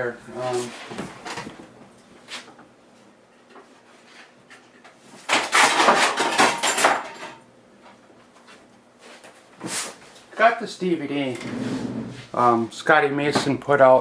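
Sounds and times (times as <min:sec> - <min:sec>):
small parts clattering: 0:05.3 - 0:07.4.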